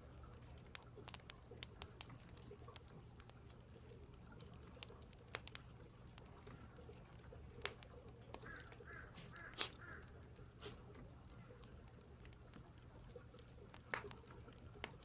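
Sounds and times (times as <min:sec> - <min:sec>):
crow cawing faintly: 0:08.4 - 0:10.8.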